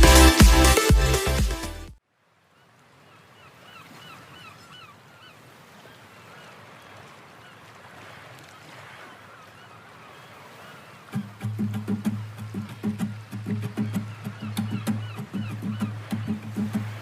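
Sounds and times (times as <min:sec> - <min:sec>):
dance music: 0:00.0 - 0:02.0
faint outdoor background noise: 0:02.0 - 0:16.7
bird short falling calls: 0:13.4 - 0:17.0.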